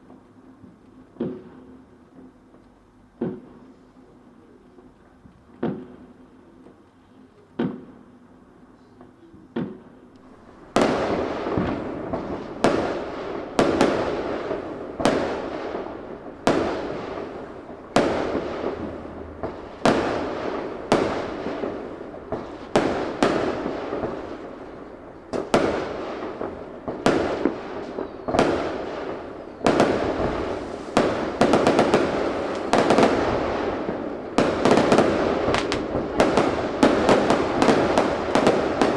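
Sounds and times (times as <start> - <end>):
fireworks bangs: 9.6 - 38.9.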